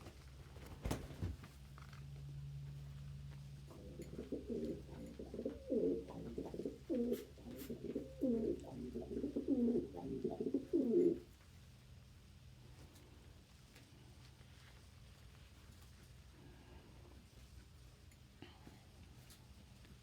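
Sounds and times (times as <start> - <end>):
pigeon cooing: 3.7 - 11.3.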